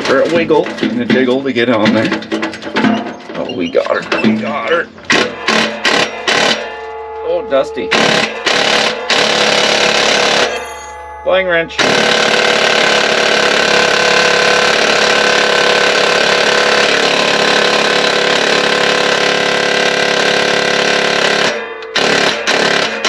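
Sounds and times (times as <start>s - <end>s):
impact wrench hammering: 0.0s - 3.3s, 4.0s - 6.9s, 7.9s - 11.1s, 11.7s - 23.0s.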